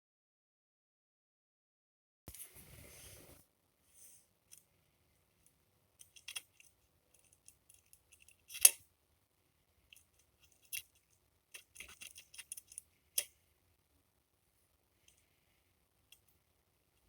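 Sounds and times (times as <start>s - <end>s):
tools and plastic parts clicking: 6.0s - 8.8s, 9.9s - 13.3s.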